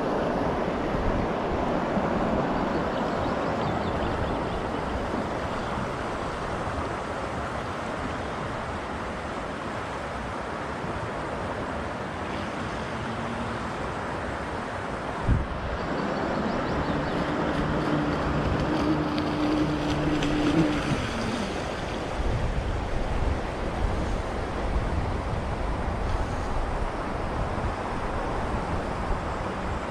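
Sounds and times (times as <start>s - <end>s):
rough water: 0.0s - 29.9s
wind buffeting the microphone: 14.4s - 29.9s
steady motor hum: 15.3s - 24.3s.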